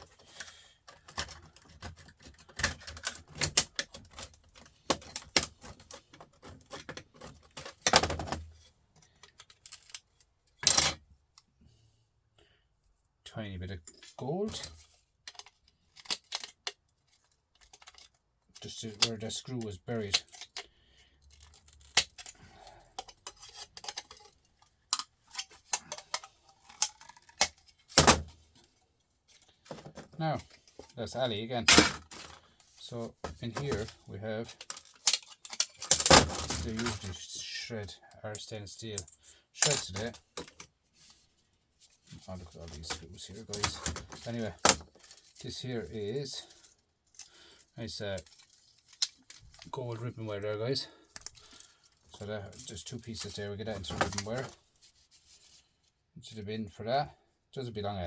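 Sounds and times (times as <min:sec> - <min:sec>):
clicks and clinks of small parts: 0:00.0 - 0:11.5, 0:13.8 - 0:37.2, 0:38.3 - 0:41.2, 0:41.8 - 0:50.1, 0:50.8 - 0:54.7
metal tool clicking on metal parts: 0:34.6 - 0:36.8.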